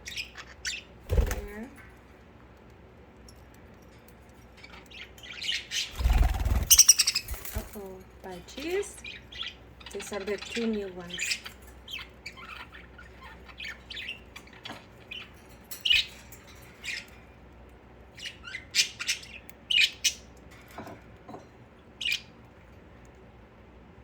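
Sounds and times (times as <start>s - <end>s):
budgerigars chirping and squawking: 0.0s - 1.6s, 4.6s - 7.7s, 8.5s - 17.5s, 18.1s - 20.4s, 21.9s - 22.4s.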